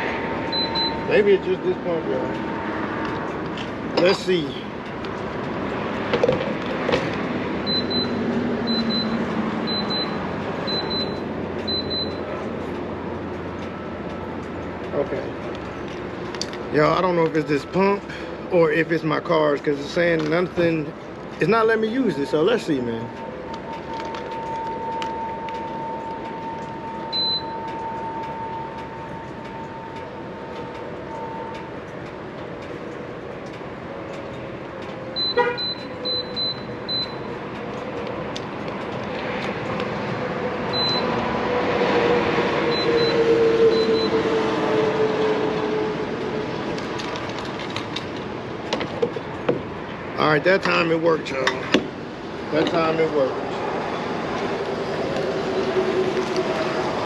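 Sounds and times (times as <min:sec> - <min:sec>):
traffic noise: 0:00.0 - 0:57.0
card reader beeping: 0:00.5 - 0:01.2, 0:07.6 - 0:14.8, 0:21.8 - 0:33.0, 0:35.2 - 0:38.1, 0:40.7 - 0:41.2, 0:42.7 - 0:44.2.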